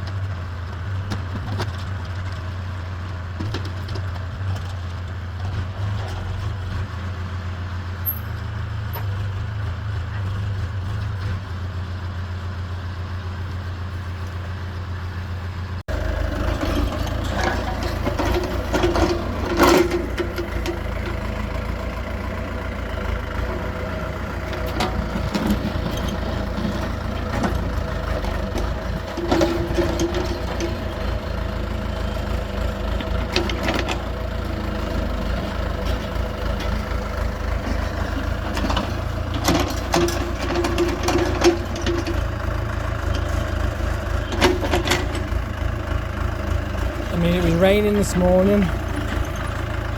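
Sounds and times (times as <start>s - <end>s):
diesel excavator engine running: 0.0s - 49.9s
knocks and clanks: 16.6s - 21.3s, 24.5s - 31.0s, 37.6s - 42.3s, 44.1s - 45.4s.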